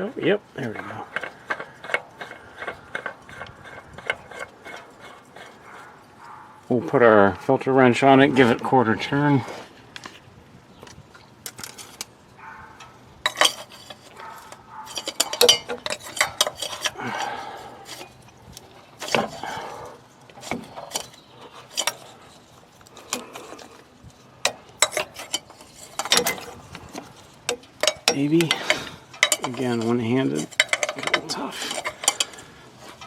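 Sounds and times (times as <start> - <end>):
metal clinks and clanks: 11.5 - 23.8, 24.4 - 33.0.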